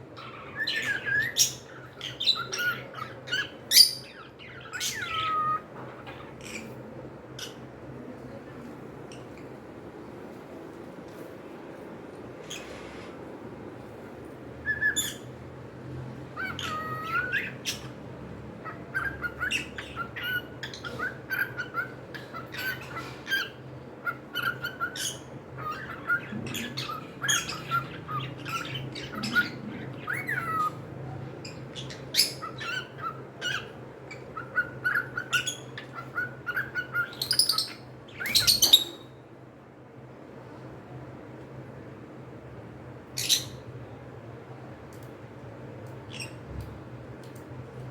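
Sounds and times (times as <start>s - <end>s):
cockatiels chirping and squawking: 0.2s - 6.8s, 14.7s - 15.3s, 16.3s - 18.0s, 18.6s - 39.1s.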